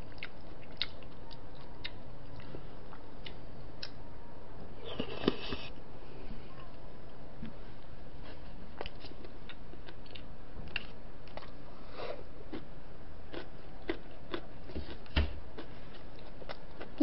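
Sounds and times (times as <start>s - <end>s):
chewing and wet mouth smacks: 0.1s - 4.0s.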